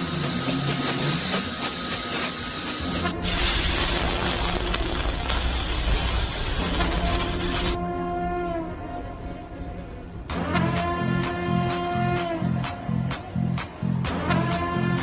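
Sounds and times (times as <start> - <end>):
hissing rush of blown air: 0.0 - 12.5
low rumble: 2.8 - 14.0.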